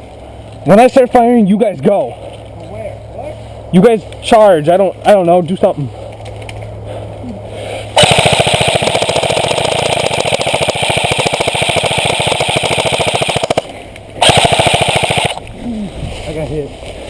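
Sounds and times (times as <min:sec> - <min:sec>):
airsoft gun firing full auto: 0:08.0 - 0:15.4.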